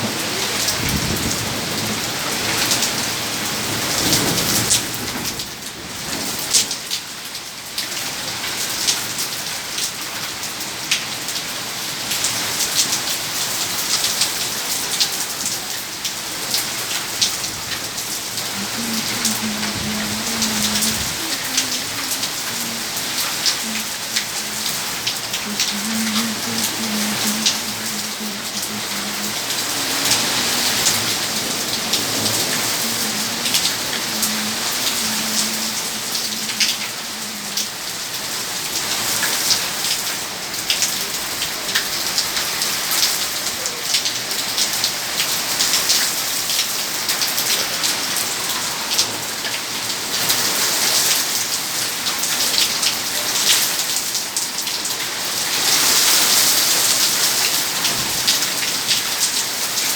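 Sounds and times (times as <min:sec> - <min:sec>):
heavy rain pouring: 0:00.0 - 0:59.9
raindrops ticking on surfaces: 0:00.0 - 0:59.9.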